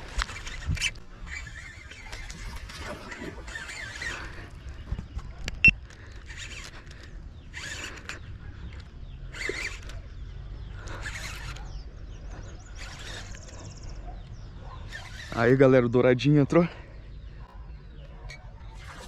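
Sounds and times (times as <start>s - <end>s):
fishing reel whirring: 0.1s - 4.6s, 7.5s - 8.2s, 9.2s - 10.2s, 10.8s - 11.7s, 12.7s - 13.8s, 14.9s - 15.6s, 18.8s - 19.0s.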